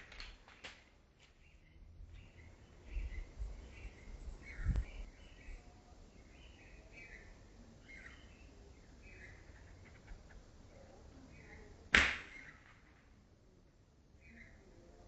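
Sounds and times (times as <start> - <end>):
small birds chirping: 0.0 - 12.7, 13.4 - 15.0.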